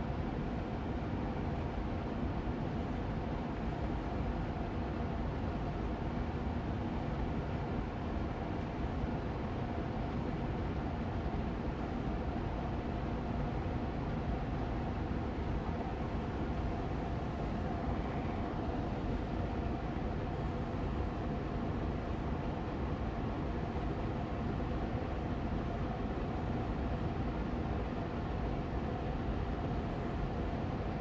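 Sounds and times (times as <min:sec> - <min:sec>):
air purifier fan running: 0:00.0 - 0:31.0.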